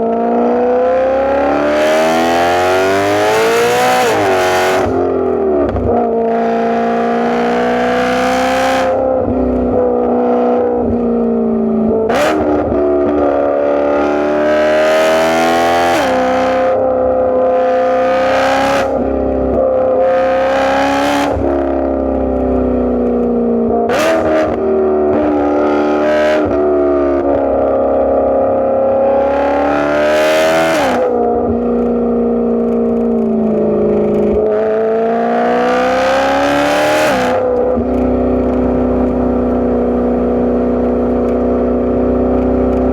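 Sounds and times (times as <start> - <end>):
car engine revving under load: 0.0 - 42.9.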